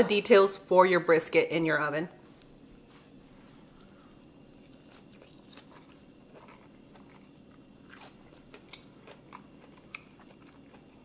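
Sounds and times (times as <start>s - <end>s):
person chewing crunchy food: 3.6s - 11.0s.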